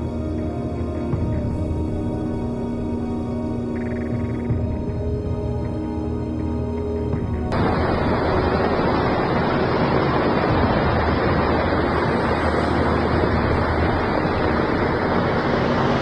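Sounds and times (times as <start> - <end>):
loud rushing storm noise: 7.5 - 16.0.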